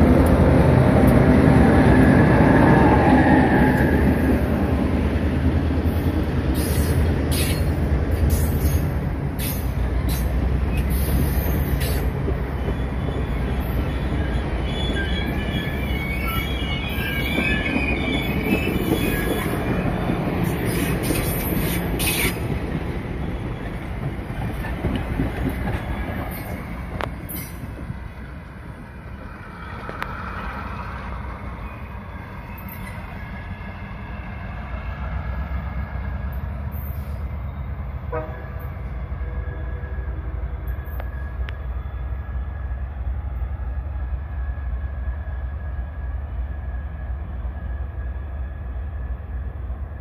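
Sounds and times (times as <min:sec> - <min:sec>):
train wheels rumbling: 0:00.0 - 0:50.0
distant train horn: 0:38.0 - 0:42.2.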